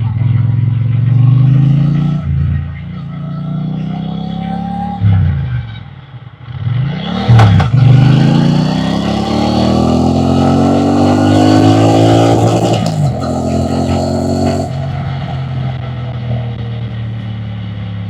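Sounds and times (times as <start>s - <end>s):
motorcycle engine accelerating: 6.4s - 18.0s
sharp exhaust crack: 7.3s - 16.9s.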